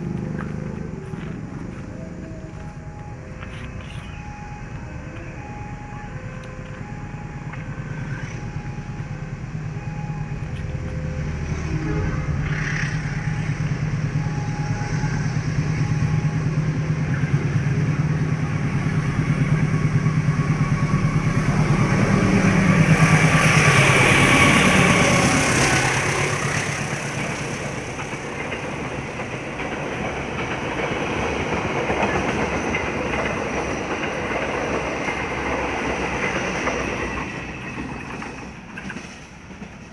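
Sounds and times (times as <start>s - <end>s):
locomotive engine hum: 0.0s - 39.9s
faint two-note signal: 2.0s - 18.4s
train wheels clattering over rails: 16.2s - 39.9s.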